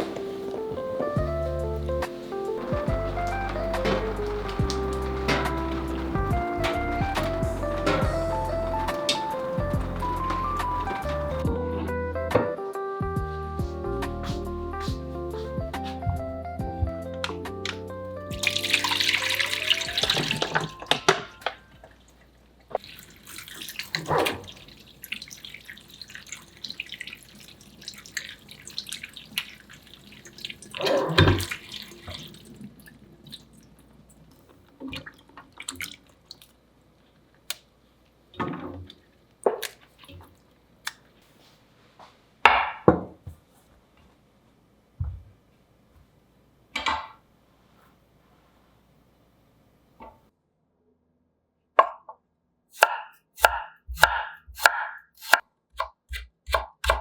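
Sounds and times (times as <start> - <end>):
dish washing sounds: 0.0 - 11.5, 18.3 - 33.8
tap water running into sink: 1.1 - 11.4, 18.3 - 21.1, 22.8 - 32.7.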